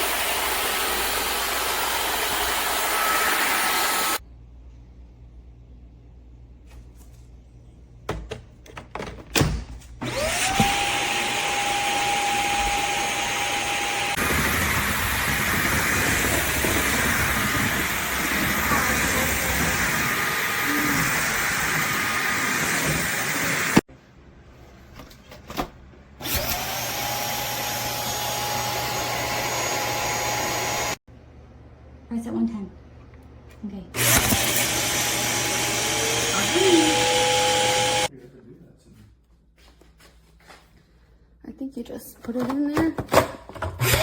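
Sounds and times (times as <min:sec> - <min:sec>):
vacuum cleaner motor whine: 0:00.0 - 0:04.2, 0:10.0 - 0:23.9, 0:26.2 - 0:31.0, 0:34.0 - 0:38.1, 0:43.8 - 0:44.0.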